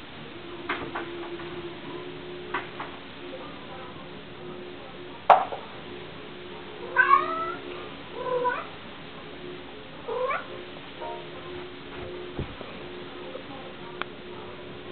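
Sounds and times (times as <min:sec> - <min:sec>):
cat meowing: 0:06.8 - 0:07.6, 0:08.2 - 0:08.7, 0:10.1 - 0:10.5.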